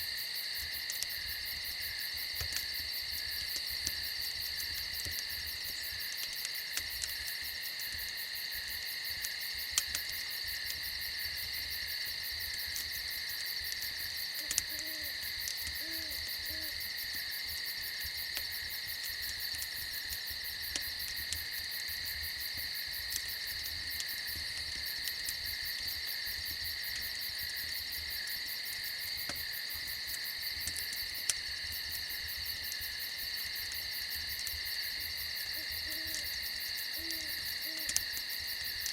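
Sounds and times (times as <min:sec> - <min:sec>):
crickets and insects trilling: 0:00.0 - 0:38.9
soft low owl hoots: 0:14.4 - 0:16.8, 0:35.5 - 0:38.0.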